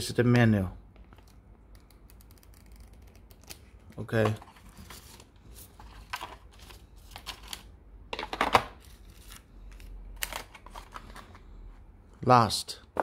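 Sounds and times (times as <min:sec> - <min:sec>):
box and accessories clicking and rustling: 0:10.2 - 0:11.4.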